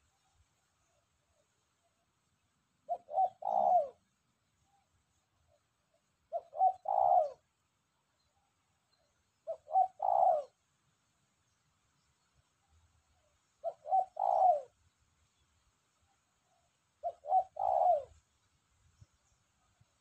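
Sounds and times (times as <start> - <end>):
dove cooing: 2.8 - 4.1, 5.9 - 7.5, 9.4 - 10.6, 13.6 - 14.8, 17.0 - 18.3.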